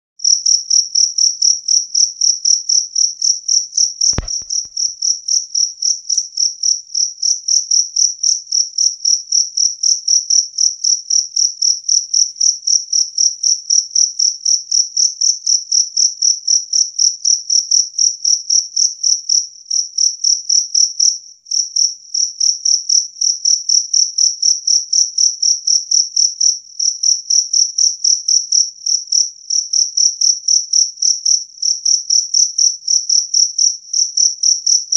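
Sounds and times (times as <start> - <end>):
cricket chirping: 0.2 - 34.9
brief click: 4.1 - 4.7.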